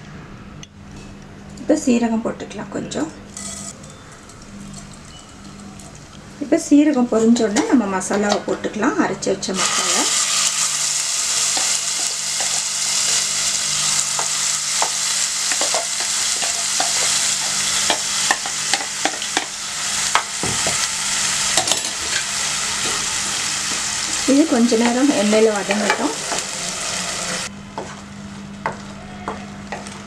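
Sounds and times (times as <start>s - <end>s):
paste sizzling in hot oil: 9.6s - 27.5s.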